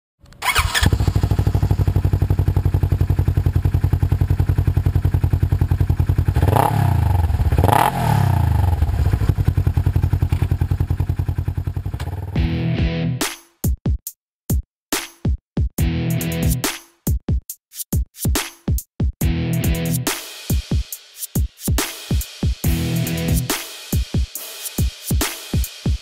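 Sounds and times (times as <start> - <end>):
engine idling and revving: 0.4 - 12.5.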